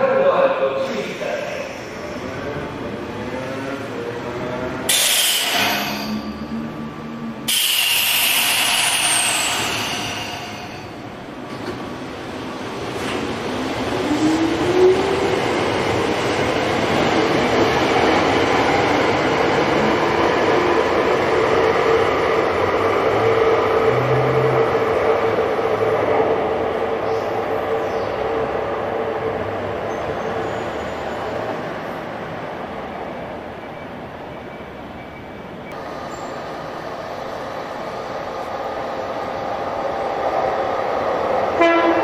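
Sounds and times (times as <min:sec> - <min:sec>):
electric train rolling: 0:00.7 - 0:42.0
train motor whine: 0:04.9 - 0:11.0.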